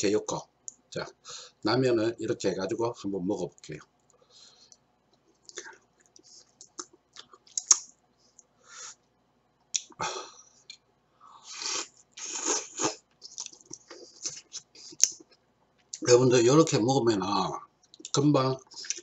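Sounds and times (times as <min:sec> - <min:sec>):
person chewing noodles: 0:11.5 - 0:16.0, 0:18.7 - 0:19.0.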